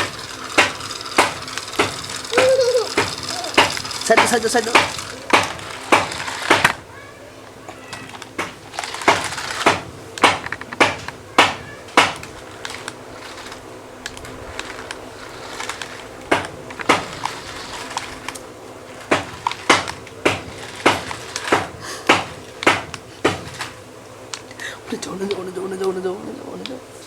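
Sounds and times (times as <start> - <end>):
toy car knocking on hard floor: 0.0 - 6.8, 7.7 - 13.6, 14.6 - 18.4, 19.0 - 23.8
faint steady hum: 0.0 - 27.0.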